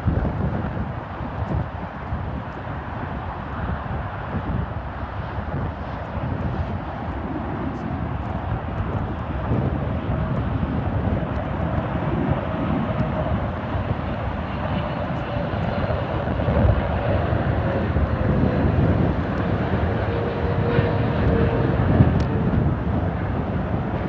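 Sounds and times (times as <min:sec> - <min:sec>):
jet engines rushing with whine: 0:00.0 - 0:24.0.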